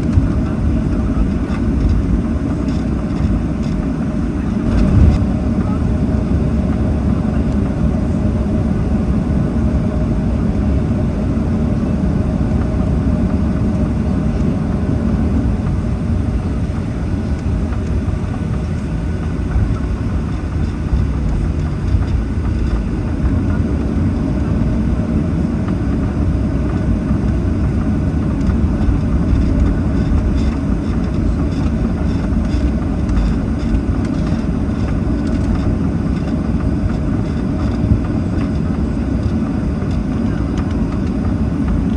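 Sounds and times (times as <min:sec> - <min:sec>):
jet engines rumbling: 0:00.0 - 0:41.9
wheels rolling on taxiway: 0:00.0 - 0:41.9.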